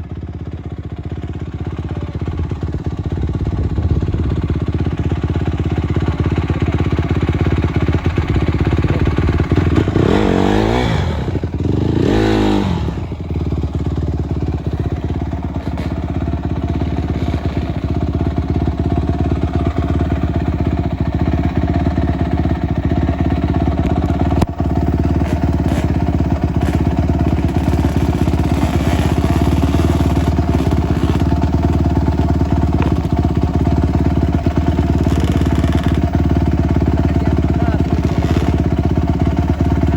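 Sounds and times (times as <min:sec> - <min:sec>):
motorcycle engine revving: 0:00.8 - 0:39.9.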